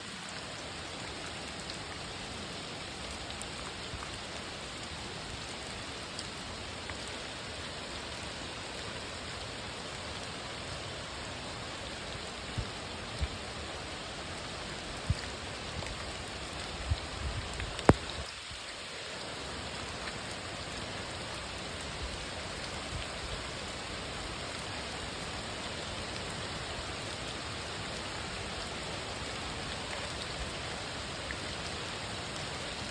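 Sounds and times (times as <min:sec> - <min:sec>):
rain falling in forest: 0:00.0 - 0:32.9.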